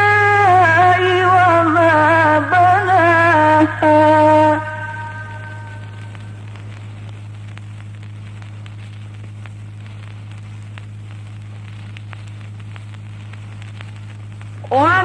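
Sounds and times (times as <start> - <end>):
faint hiss: 0.0 - 15.0
low electrical hum: 0.0 - 15.0
small crackling clicks: 3.8 - 15.0.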